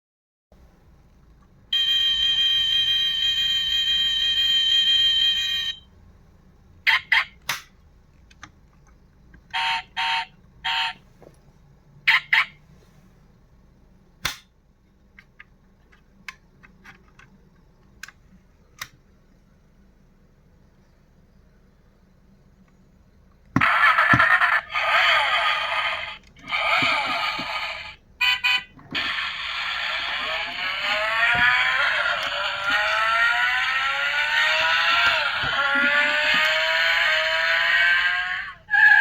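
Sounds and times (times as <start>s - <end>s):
buzzing electronic tone: 27.0s - 38.2s.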